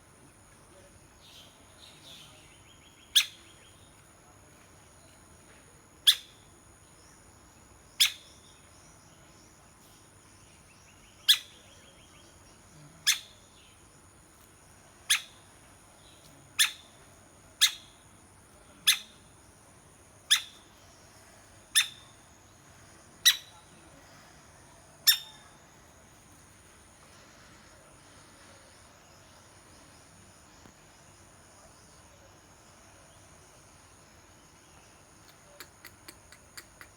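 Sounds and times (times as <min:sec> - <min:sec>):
woodpecker call notes: 0:01.3 - 0:03.9, 0:06.0 - 0:06.5, 0:07.9 - 0:08.7, 0:10.7 - 0:12.4, 0:13.0 - 0:13.8, 0:15.0 - 0:18.1, 0:18.8 - 0:19.3, 0:20.2 - 0:22.3, 0:23.1 - 0:25.7, 0:35.2 - 0:36.9.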